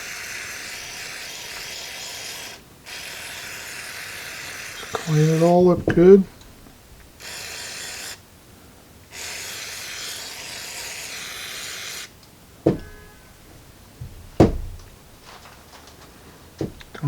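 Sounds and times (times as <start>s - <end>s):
short knocks: 5.7s - 6.3s, 12.6s - 17.0s
aerosol can spraying hiss: 9.1s - 12.2s.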